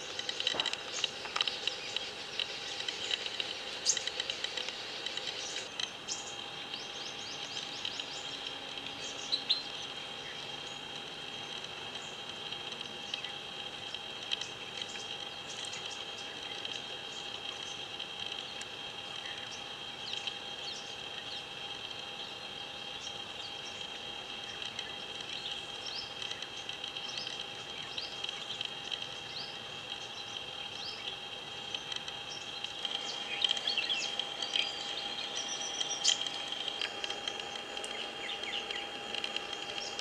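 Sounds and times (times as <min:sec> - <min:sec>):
birds chirping: 0:00.0 - 0:12.2, 0:23.0 - 0:40.0
high insect drone: 0:00.0 - 0:40.0.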